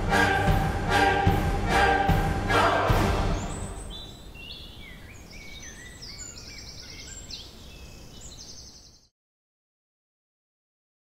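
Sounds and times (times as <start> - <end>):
outdoor background noise: 2.5 - 9.1
small birds chirping: 3.2 - 9.1.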